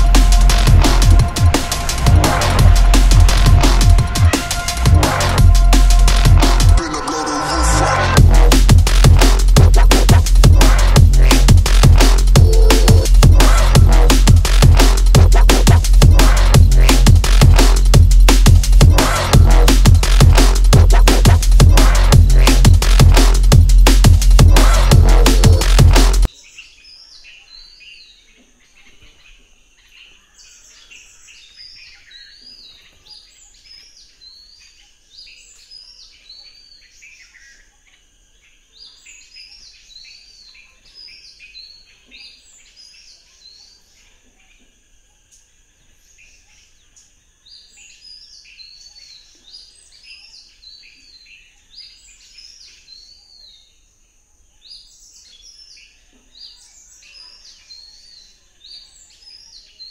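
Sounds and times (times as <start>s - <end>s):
birds singing and calling: 26.2s - 59.9s.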